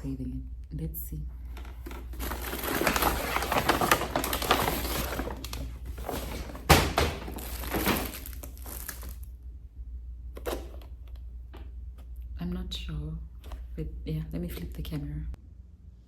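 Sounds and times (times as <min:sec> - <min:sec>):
food packaging rustling and crinkling: 0:01.5 - 0:09.3.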